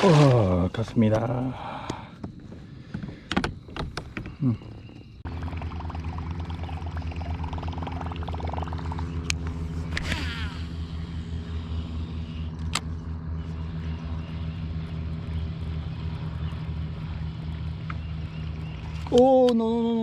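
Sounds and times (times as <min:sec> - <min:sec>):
electric motor humming: 0:05.2 - 0:19.2.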